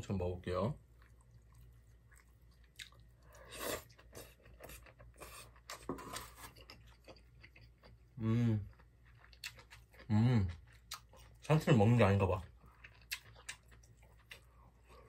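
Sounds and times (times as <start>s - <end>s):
chewing lettuce: 8.6s - 14.6s.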